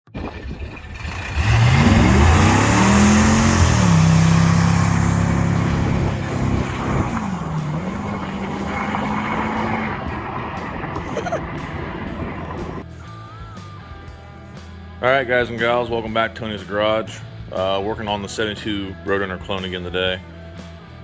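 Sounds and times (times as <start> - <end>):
car engine revving: 0.7 - 12.8.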